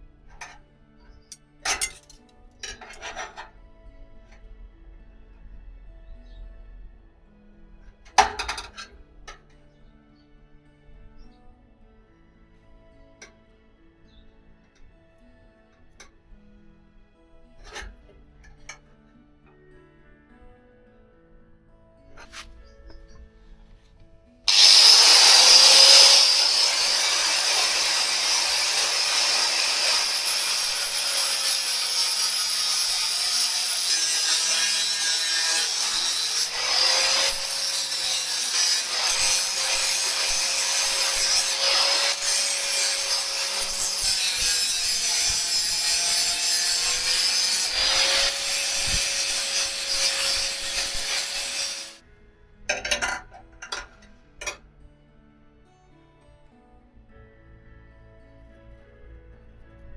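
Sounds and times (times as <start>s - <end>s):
electric power tool cutting: 24.5s - 52.0s.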